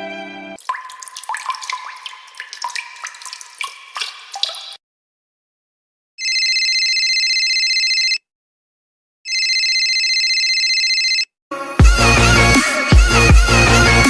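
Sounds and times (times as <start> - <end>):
telephone ringing: 6.2 - 8.2, 9.3 - 11.2.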